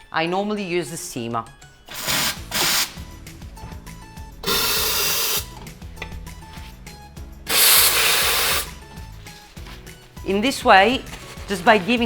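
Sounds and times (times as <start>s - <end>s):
quiet background music: 0.0s - 12.0s
steam wand hissing: 1.9s - 3.0s, 4.4s - 5.6s, 7.5s - 8.8s.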